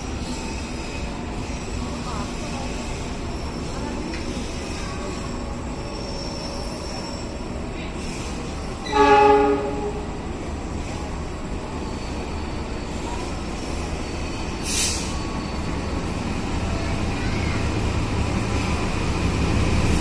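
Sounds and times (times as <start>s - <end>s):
rumble of trains: 0.0s - 20.0s
train horn blast: 8.8s - 10.2s
brief hiss: 14.6s - 15.2s.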